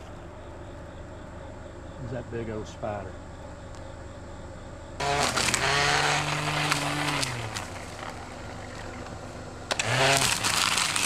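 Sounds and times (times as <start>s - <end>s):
chainsaw engine revving: 5.0s - 11.0s.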